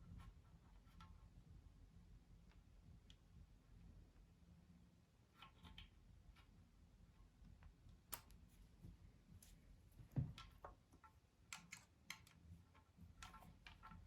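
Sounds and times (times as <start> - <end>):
small parts and tools clicking: 10.4 - 14.0.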